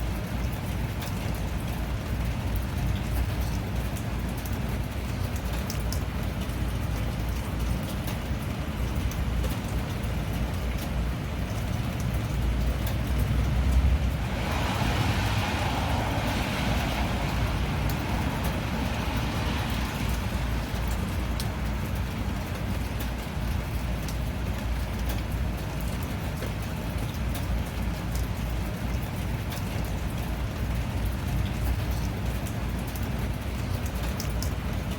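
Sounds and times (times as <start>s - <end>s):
rain drop ticks: 0.0s - 34.9s
steady rain: 0.0s - 34.9s
rush of hiss: 14.2s - 20.4s.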